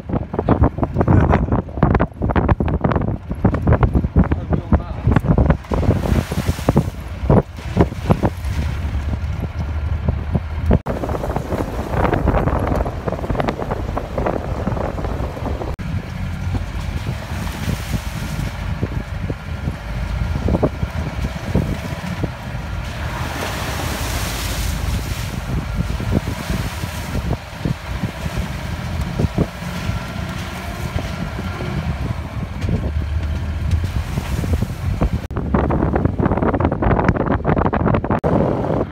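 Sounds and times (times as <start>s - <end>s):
diesel engine running: 0.0s - 38.9s
knocks and rattles of bumpy ride: 0.0s - 38.9s
wind buffeting microphone: 0.0s - 38.9s.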